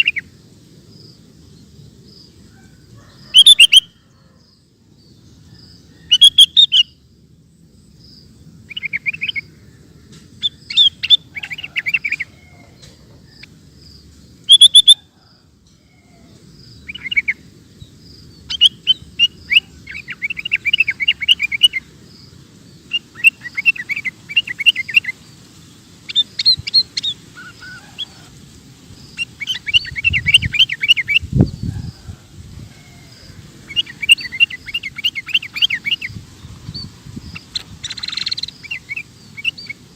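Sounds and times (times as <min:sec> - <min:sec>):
bird singing chirpy phrases: 0:08.0 - 0:12.2, 0:13.3 - 0:15.0, 0:16.6 - 0:28.1, 0:29.0 - 0:31.6, 0:33.7 - 0:39.9.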